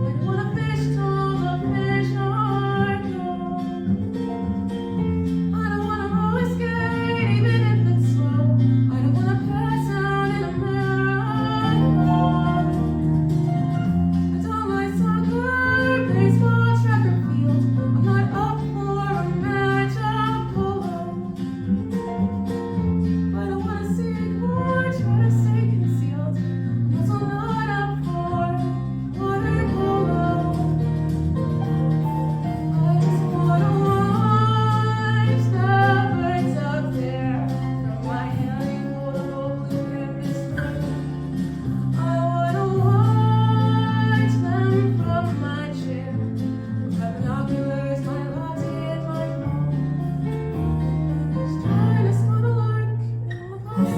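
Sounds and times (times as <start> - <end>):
bass line: 0.0 - 53.9
guitar accompaniment: 0.0 - 53.9
person singing: 27.1 - 31.2, 32.5 - 50.4, 51.4 - 53.9.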